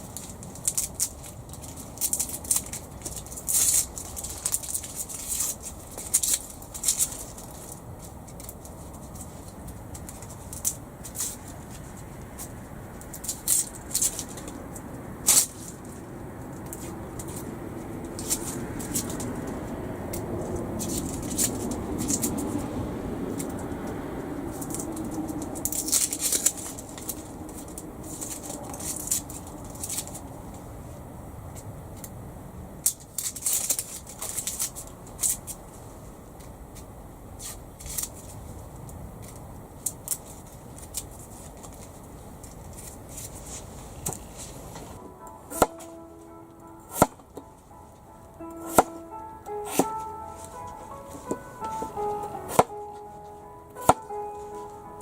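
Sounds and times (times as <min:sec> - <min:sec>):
background music with sustained notes: 0:45.0 - 0:55.0.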